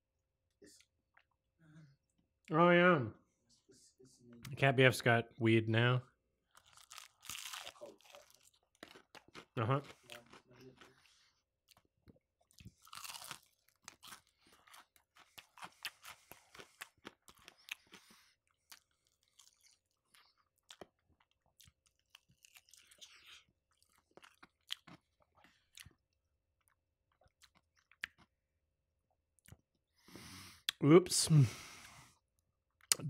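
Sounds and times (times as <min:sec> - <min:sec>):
chewing and crunching: 0:06.5 - 0:28.4.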